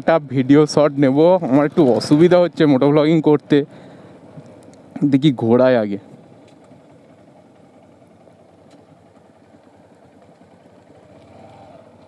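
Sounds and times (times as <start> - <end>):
muffled motorcycle engine idling: 0.0 - 12.0.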